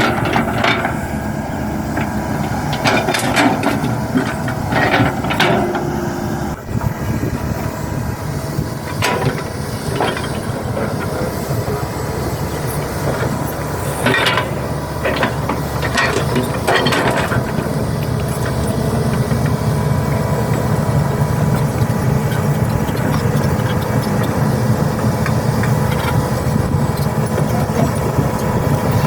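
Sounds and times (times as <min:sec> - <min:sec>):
metallic clanks and knocks: 0:00.0 - 0:01.2, 0:01.9 - 0:06.0, 0:08.9 - 0:11.4, 0:12.7 - 0:19.6
diesel engine running: 0:00.0 - 0:29.0.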